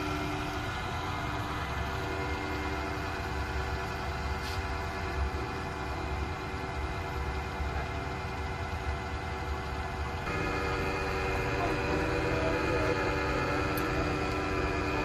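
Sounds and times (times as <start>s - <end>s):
machine tool motor humming: 10.1s - 15.0s.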